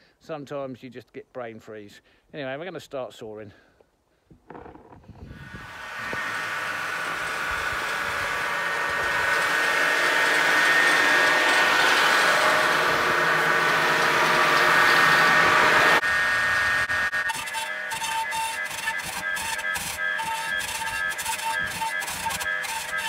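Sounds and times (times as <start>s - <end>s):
power saw cutting: 5.2s - 23.0s.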